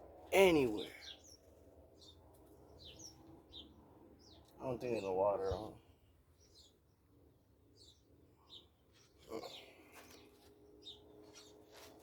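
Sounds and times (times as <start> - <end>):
bird chirps: 0.4 - 5.7.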